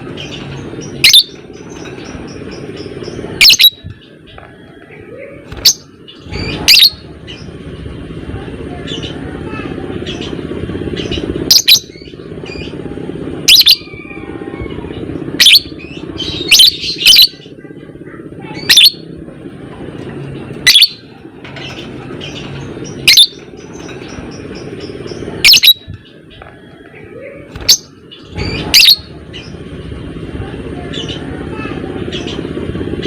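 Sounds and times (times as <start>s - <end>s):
low background rumble: 0.0s - 33.0s
bird shrill chirps: 0.2s - 1.9s, 2.6s - 3.9s, 5.6s - 7.5s, 13.5s - 14.6s, 15.4s - 17.4s, 18.6s - 19.0s, 20.7s - 21.0s, 22.3s - 25.9s, 27.6s - 29.6s.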